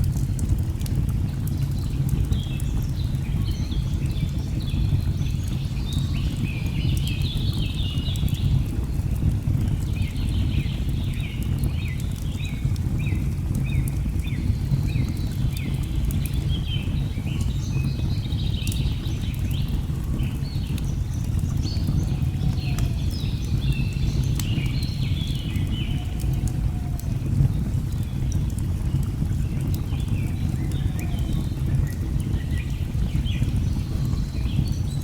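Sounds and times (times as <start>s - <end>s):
log fire crackling: 0.0s - 35.0s
jungle birds chirping: 20.0s - 26.9s, 29.0s - 34.8s.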